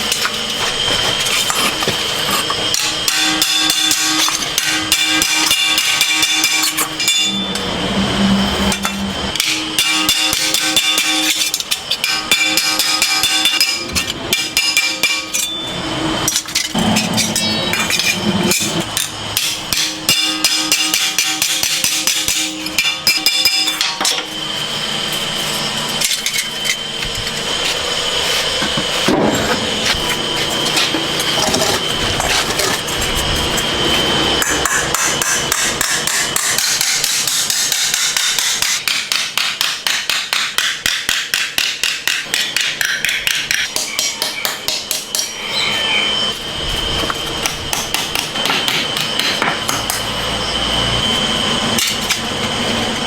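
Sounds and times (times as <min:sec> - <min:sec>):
hammer striking metal: 0:02.7 - 0:07.8, 0:08.4 - 0:24.3, 0:34.4 - 0:45.6, 0:47.4 - 0:50.1.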